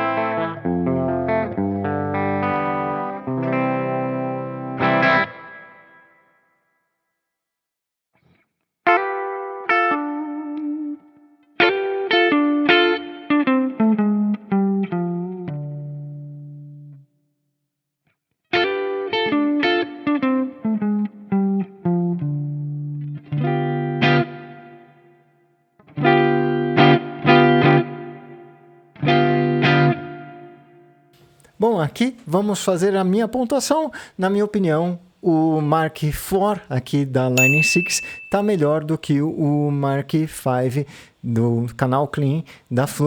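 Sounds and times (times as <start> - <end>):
clean electric guitar: 0.0 - 6.2, 8.2 - 17.1, 18.5 - 31.6.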